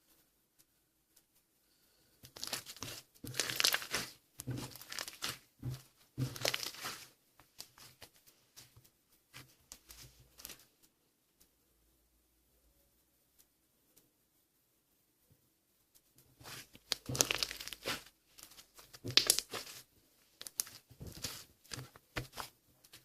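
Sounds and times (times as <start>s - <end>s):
slime pressed and stretched: 2.3s - 8.0s, 16.4s - 23.0s.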